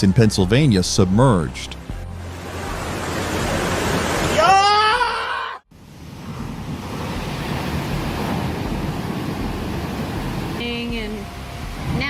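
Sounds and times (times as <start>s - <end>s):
rushing floodwater: 2.2s - 4.6s, 5.8s - 12.0s
person shouting: 4.3s - 5.6s.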